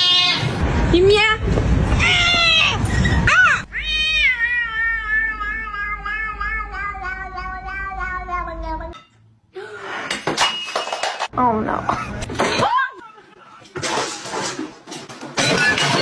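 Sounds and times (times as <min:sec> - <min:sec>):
cat meowing: 0:03.5 - 0:09.0.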